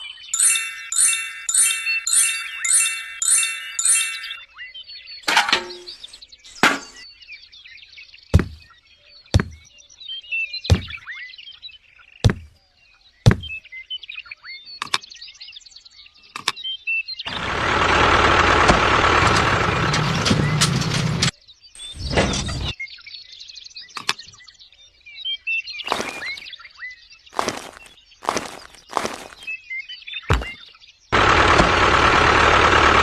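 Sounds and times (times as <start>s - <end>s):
birds chirping: 0.0s - 17.8s, 23.5s - 31.3s.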